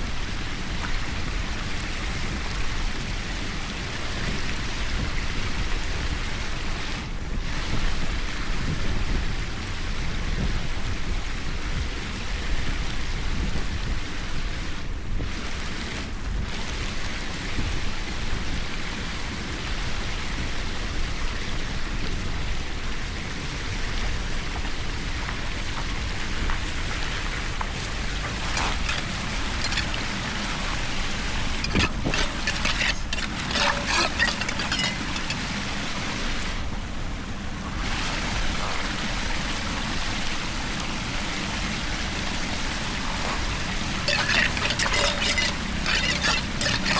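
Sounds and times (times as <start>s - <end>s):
water rushing hiss: 13.8s - 21.0s, 24.4s - 36.6s.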